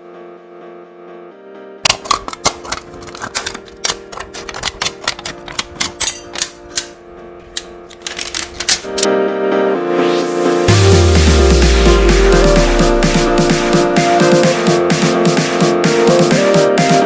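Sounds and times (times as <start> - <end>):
background music: 0.0 - 17.0
sharp clicks and taps: 1.9 - 6.9.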